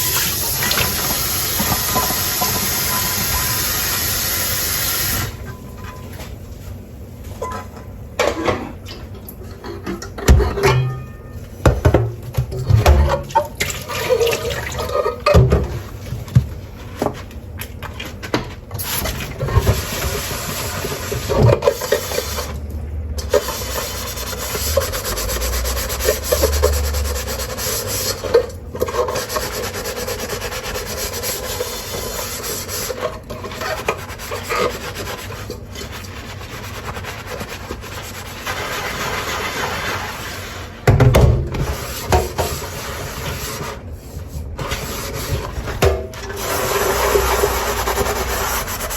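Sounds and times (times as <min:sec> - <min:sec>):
sponge scrubbing dishes: 0:00.0 - 0:05.2, 0:08.2 - 0:48.9
running tap water: 0:00.0 - 0:05.4, 0:13.5 - 0:15.2
dishes knocking: 0:09.9 - 0:13.3.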